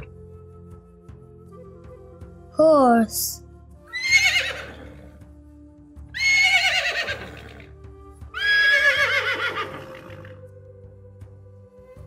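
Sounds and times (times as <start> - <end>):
soft background music: 0.0 - 12.0
horse whinnying: 3.9 - 5.1, 6.1 - 10.4.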